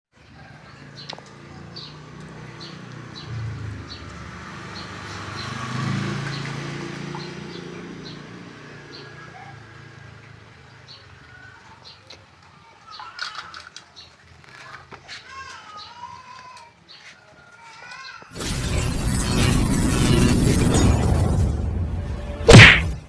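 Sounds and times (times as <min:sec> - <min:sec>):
vehicle engine rumble passing: 0:00.8 - 0:10.6.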